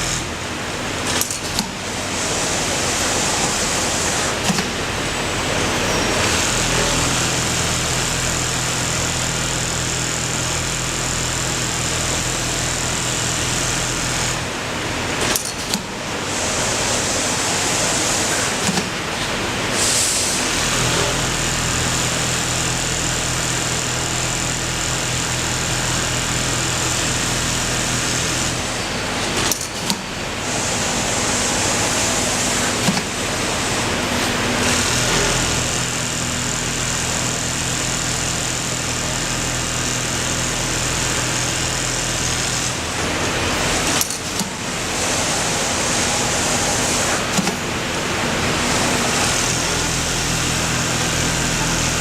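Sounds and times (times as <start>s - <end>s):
sewing machine running: 0.0s - 19.2s, 20.4s - 52.0s.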